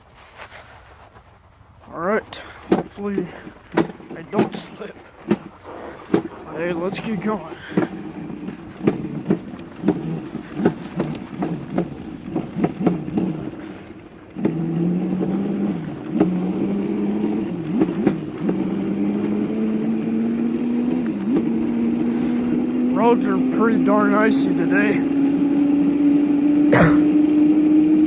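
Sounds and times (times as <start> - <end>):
electric motor whine: 14.4 - 28.0.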